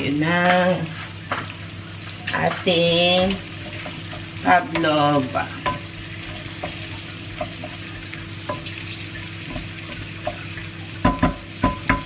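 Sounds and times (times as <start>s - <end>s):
peppers sizzling in a frying pan: 0.0s - 12.0s
spatula tapping a pan: 5.6s - 8.8s, 9.4s - 12.0s.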